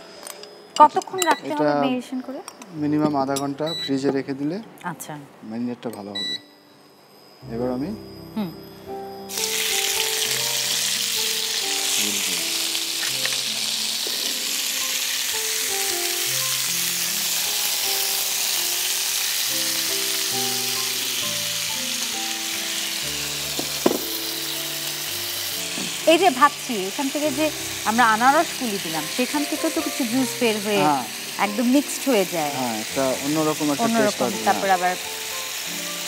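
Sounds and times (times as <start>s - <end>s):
soft background music: 0.0s - 36.0s
meat sizzling in a frying pan: 9.3s - 36.0s.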